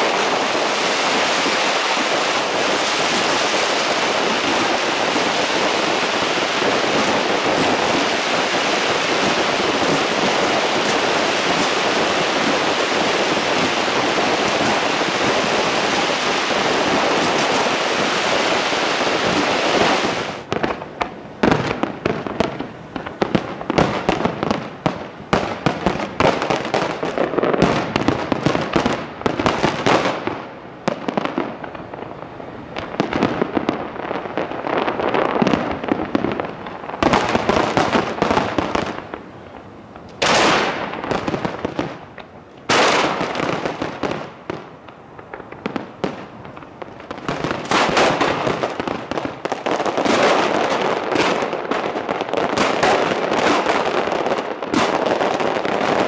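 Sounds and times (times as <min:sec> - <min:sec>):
fireworks crackling: 0:00.0 - 0:56.0.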